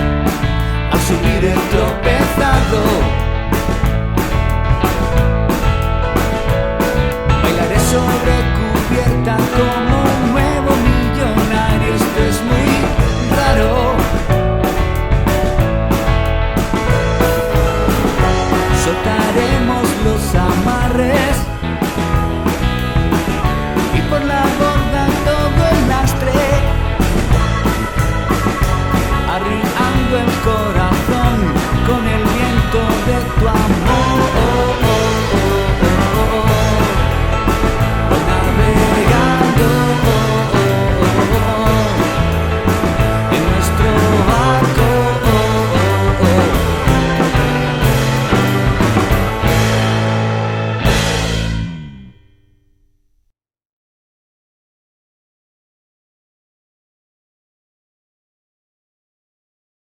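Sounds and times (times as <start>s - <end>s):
drum kit: 0.0s - 52.2s
rock band music: 0.0s - 52.4s
bending lead guitar: 0.0s - 52.6s
bass guitar: 0.0s - 52.7s.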